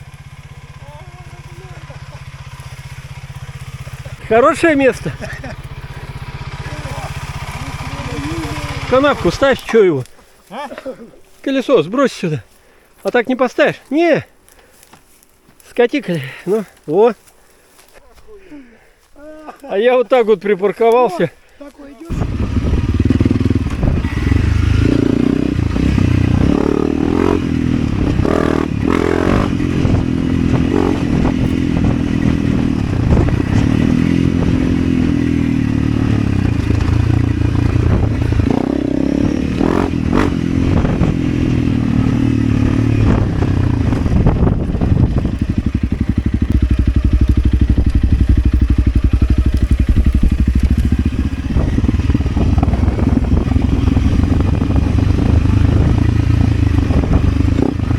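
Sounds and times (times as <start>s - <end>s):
motorcycle engine running: 0.0s - 9.9s, 22.0s - 57.9s.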